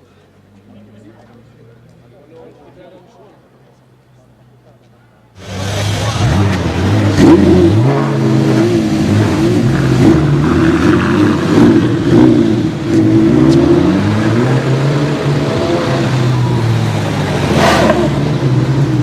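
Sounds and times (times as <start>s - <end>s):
car engine revving: 5.4s - 19.0s.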